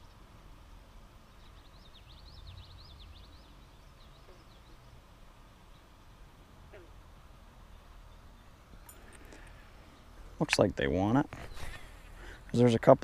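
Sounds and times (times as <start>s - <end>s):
songbird warbling: 1.3s - 5.0s.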